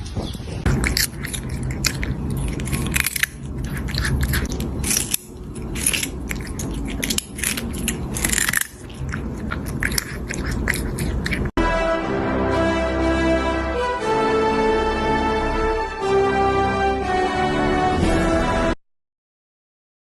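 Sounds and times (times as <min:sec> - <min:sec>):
loud crunching: 0:00.6 - 0:11.5.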